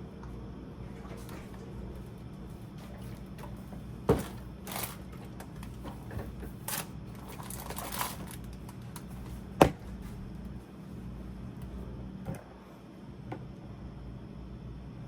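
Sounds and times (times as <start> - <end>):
low steady hum: 0.0 - 15.0
plastic packaging rustling: 6.6 - 9.3.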